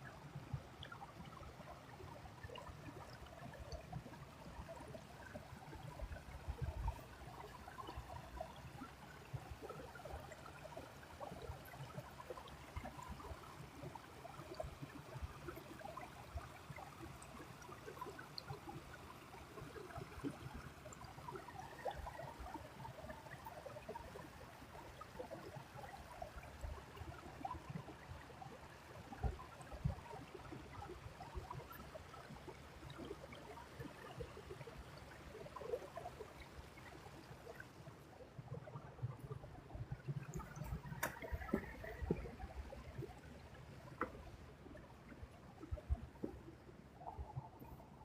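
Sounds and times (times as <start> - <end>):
creek babbling: 36.6 - 48.0
soft low thumps: 38.8 - 47.6.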